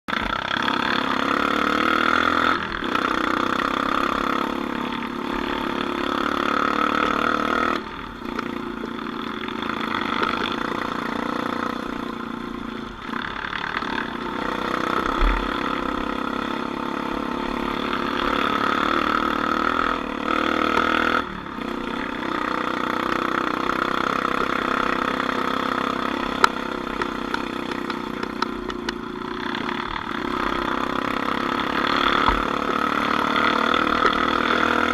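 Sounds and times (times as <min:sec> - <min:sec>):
off-road vehicle engine running: 0:00.1 - 0:34.9.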